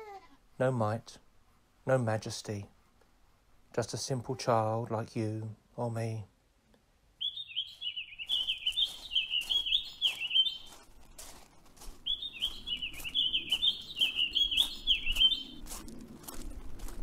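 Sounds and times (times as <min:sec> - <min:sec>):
songbird warbling: 0:07.2 - 0:10.7, 0:12.0 - 0:15.7.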